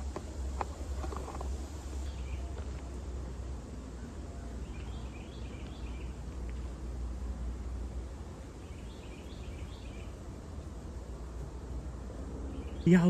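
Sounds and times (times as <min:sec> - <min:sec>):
bird chirping: 0:08.6 - 0:10.2.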